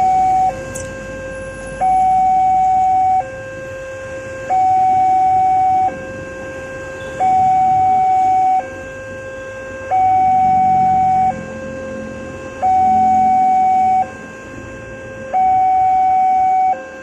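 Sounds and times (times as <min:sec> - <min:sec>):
two-tone level crossing alarm: 0:00.0 - 0:17.0.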